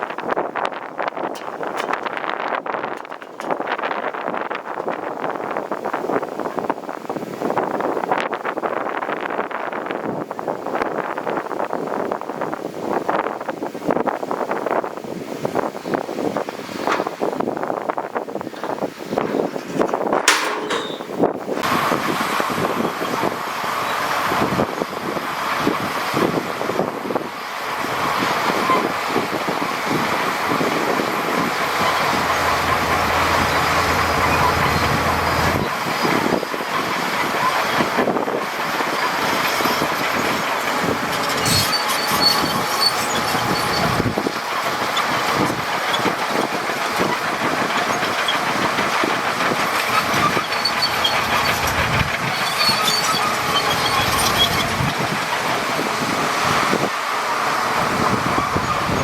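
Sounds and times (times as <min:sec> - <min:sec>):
steel tracks clattering: 0:00.0 - 0:13.3, 0:15.4 - 0:59.0
bulldozer diesel engine: 0:00.0 - 0:13.4, 0:15.0 - 0:59.0
high metallic squeals: 0:18.6 - 0:21.4, 0:28.0 - 0:36.3, 0:38.8 - 0:47.1, 0:47.8 - 0:55.0.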